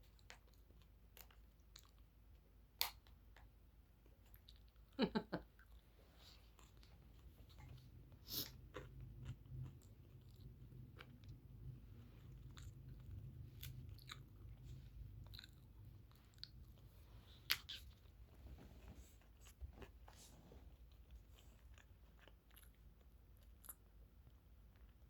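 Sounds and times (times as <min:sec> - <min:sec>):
person chewing: 0:05.6 - 0:18.2, 0:19.2 - 0:23.9.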